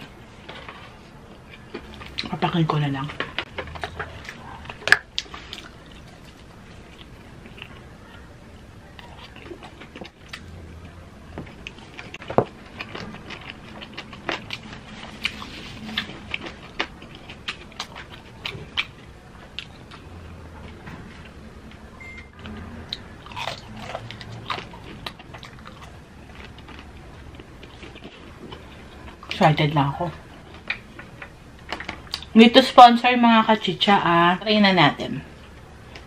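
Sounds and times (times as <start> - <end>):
person chewing food: 0.0 - 2.4, 3.0 - 29.4.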